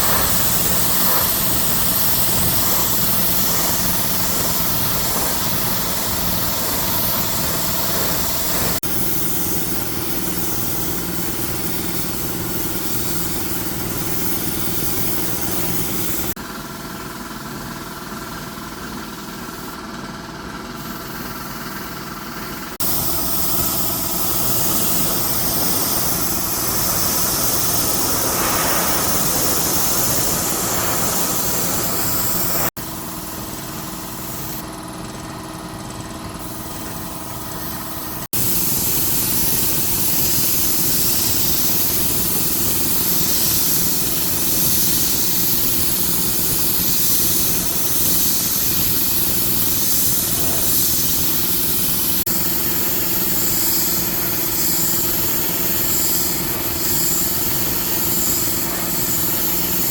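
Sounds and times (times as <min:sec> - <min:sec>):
machinery motor hum: 0:00.0 - 0:08.9, 0:22.8 - 0:32.8
loud even hiss: 0:00.0 - 0:09.4, 0:22.8 - 0:32.8, 0:38.3 - 0:59.9.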